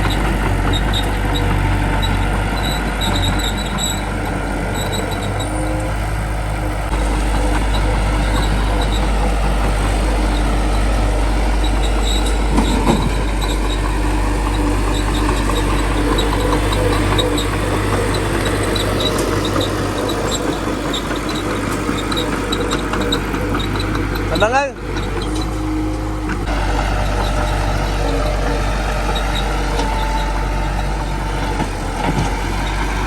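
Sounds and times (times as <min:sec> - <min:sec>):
bulldozer diesel engine running: 0:00.0 - 0:33.0
light regular ticking: 0:06.8 - 0:32.0.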